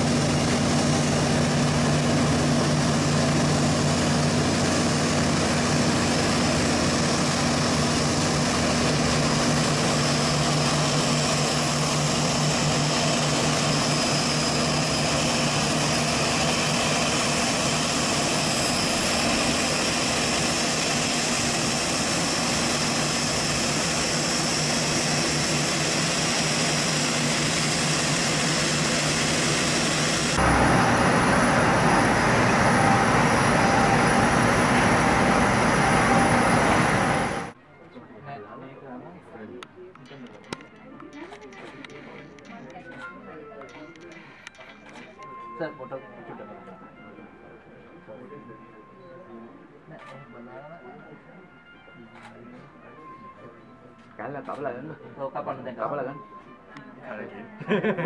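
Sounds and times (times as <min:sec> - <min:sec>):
jet engines running: 0:00.0 - 0:37.6
low hum: 0:20.8 - 0:37.6.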